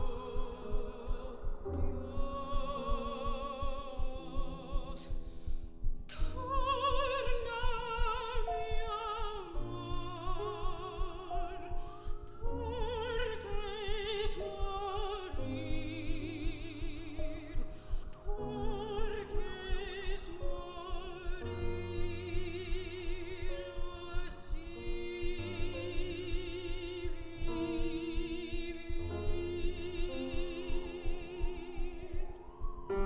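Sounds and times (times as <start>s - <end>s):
piano accompaniment: 0.0s - 33.0s
soprano singing with vibrato: 0.0s - 33.0s
singer breathing: 5.2s - 5.8s, 17.7s - 18.2s.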